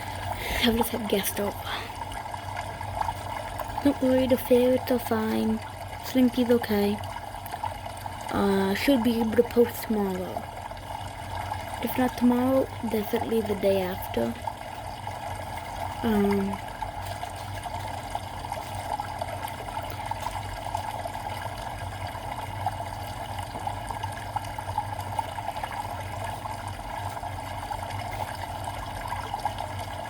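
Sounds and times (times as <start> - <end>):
water trickling: 0.0 - 30.0.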